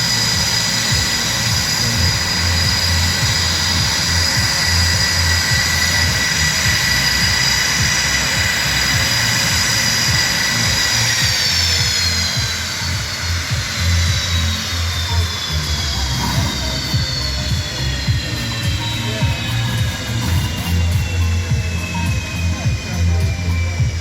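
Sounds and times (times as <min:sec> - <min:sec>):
jet engines whining: 0:00.0 - 0:24.0.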